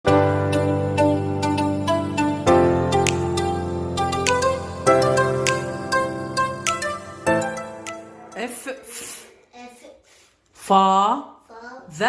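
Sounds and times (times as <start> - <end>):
soft plucked melody over chords: 0.1 - 8.4.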